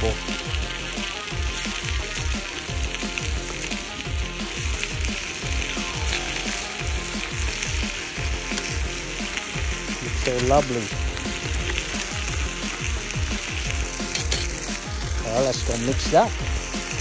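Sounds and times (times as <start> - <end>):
chicken frying in hot oil: 0.0 - 17.0
music with deep bass beat: 0.0 - 17.0.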